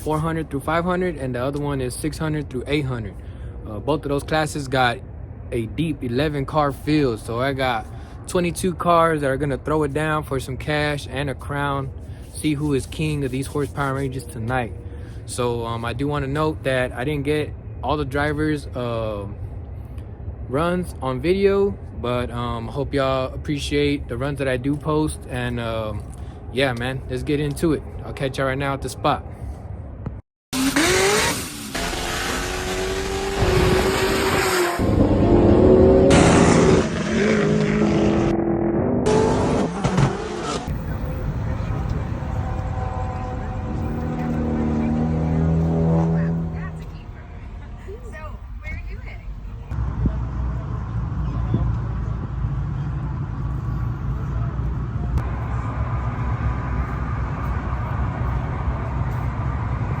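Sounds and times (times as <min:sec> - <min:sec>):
race car engines accelerating: 0:30.6 - 0:47.7, 0:49.7 - 1:00.0.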